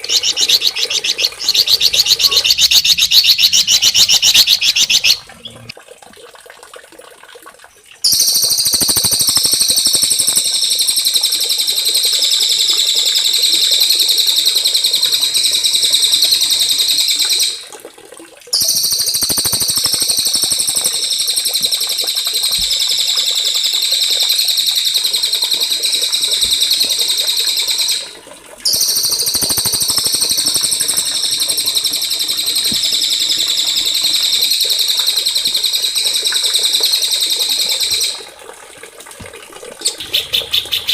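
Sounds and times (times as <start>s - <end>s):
songbird trilling: 0.0s - 5.7s, 28.7s - 38.2s, 39.8s - 40.9s.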